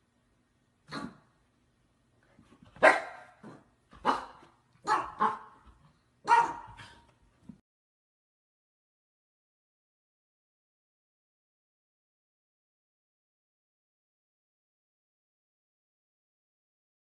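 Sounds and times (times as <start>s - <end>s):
dog barking: 0.9s - 1.2s, 2.8s - 5.6s, 6.2s - 7.1s.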